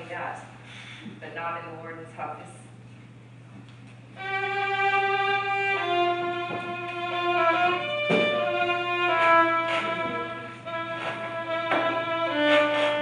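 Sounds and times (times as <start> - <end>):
faint steady hum: 0.0 - 13.0
violin playing slow notes: 4.2 - 13.0.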